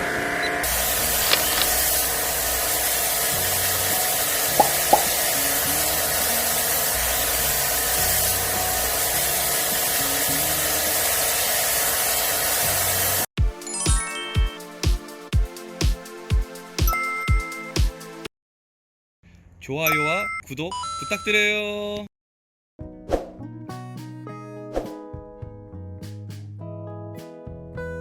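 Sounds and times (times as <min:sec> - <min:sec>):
high-pressure water spray hissing: 0:00.6 - 0:13.3
chiming jingle: 0:13.6 - 0:14.7, 0:16.9 - 0:17.8, 0:19.9 - 0:21.4.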